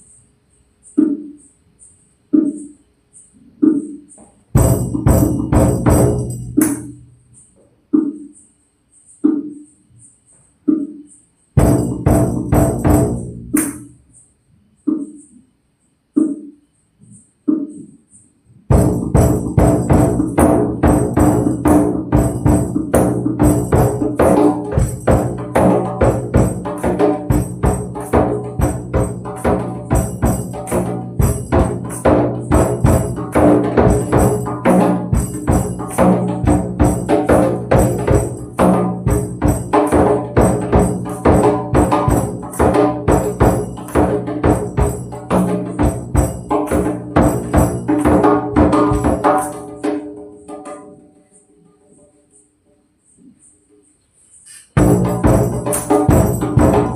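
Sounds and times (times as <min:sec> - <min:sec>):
tambourine jingles: 0:00.0 - 0:56.9
hand drum strikes: 0:04.5 - 0:07.0, 0:11.6 - 0:14.0, 0:18.7 - 0:51.0, 0:54.8 - 0:56.9.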